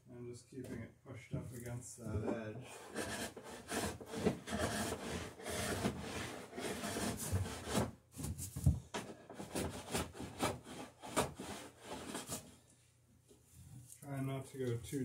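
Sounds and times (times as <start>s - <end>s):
scraping tool rasping on wood: 2.6s - 7.9s.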